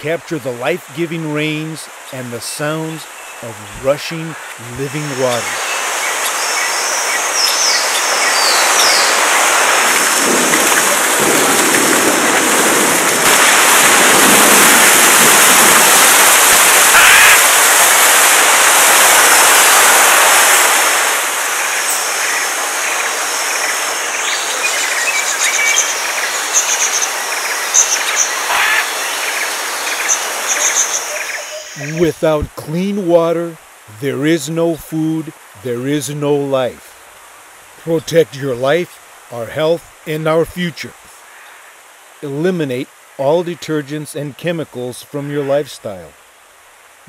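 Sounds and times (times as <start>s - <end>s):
rain and rushing water: 0.0s - 47.0s
high bird chirps: 5.4s - 9.2s, 21.9s - 32.1s.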